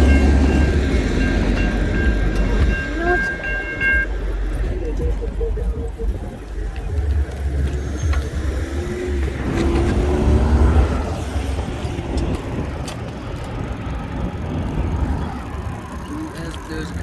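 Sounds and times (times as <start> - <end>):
wind rumbling on microphone: 4.2 - 17.0
vehicle passing close by: 7.6 - 17.0.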